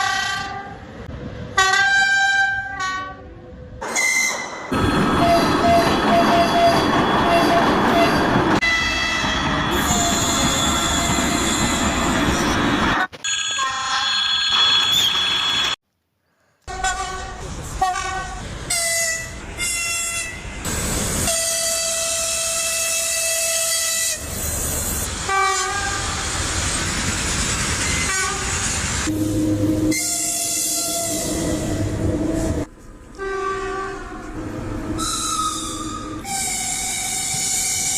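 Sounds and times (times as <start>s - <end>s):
trains running: 3.8s - 15.8s, 17.2s - 33.3s
train air horn blasts: 5.1s - 11.8s, 16.7s - 20.4s, 21.2s - 24.3s, 25.3s - 26.1s, 29.1s - 34.4s.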